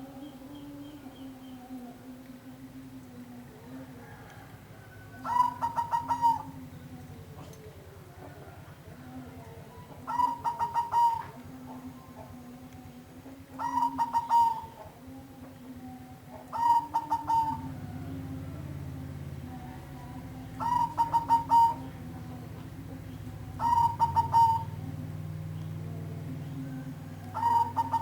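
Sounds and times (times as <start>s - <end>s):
dove cooing: 0.0s - 28.0s
low steady hum: 0.0s - 28.0s.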